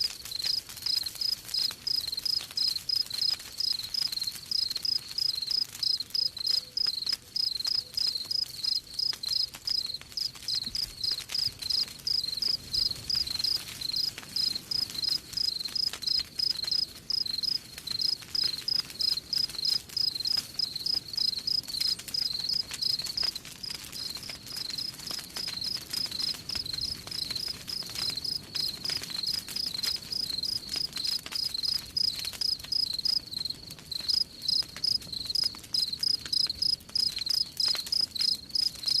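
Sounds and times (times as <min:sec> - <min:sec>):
wood fire crackling: 0:00.0 - 0:39.0
cricket chirping: 0:00.3 - 0:39.0.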